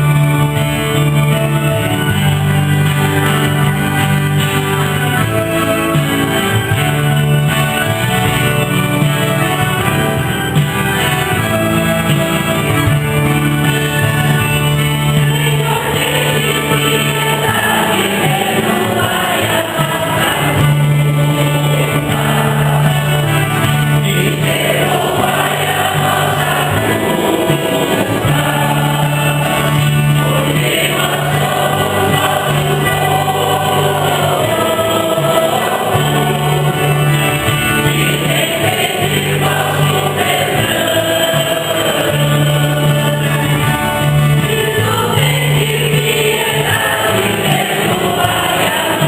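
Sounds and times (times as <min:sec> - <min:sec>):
choir singing a hymn: 0:00.0 - 0:49.0
instrumental accompaniment: 0:00.0 - 0:49.0.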